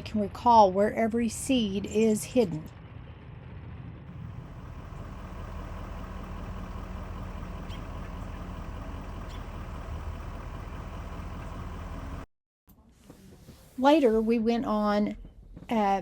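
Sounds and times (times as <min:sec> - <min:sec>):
road noise: 0:00.0 - 0:12.3
vehicle engine drone: 0:00.0 - 0:12.3.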